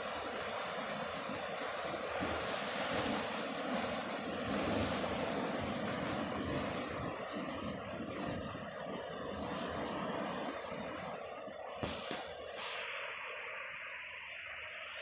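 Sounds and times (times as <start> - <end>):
sea surf: 0.0 - 15.0.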